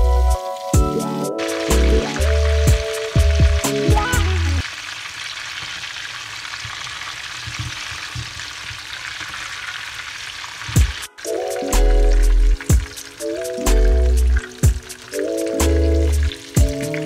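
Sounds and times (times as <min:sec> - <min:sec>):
music: 0:00.0 - 0:04.6, 0:10.8 - 0:17.0
food sizzling in oil: 0:00.0 - 0:17.0.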